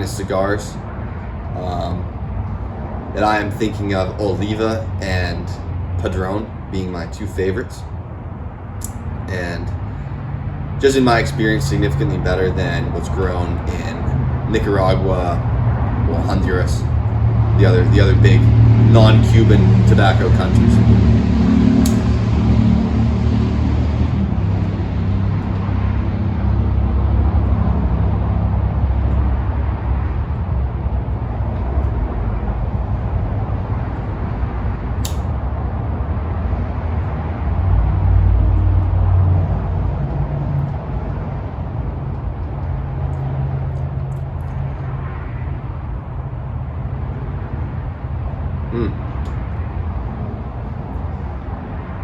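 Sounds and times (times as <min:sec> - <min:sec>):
low outdoor rumble: 0:00.0 - 0:52.0
short sharp click: 0:35.0 - 0:35.3.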